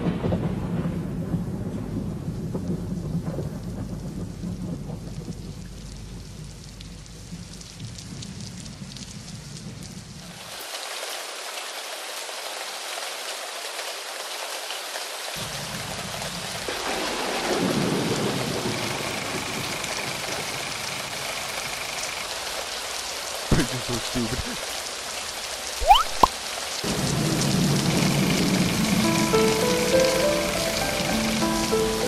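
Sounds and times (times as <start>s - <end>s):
rolling thunder: 0.0s - 6.4s
heavy rain hissing: 9.4s - 32.0s.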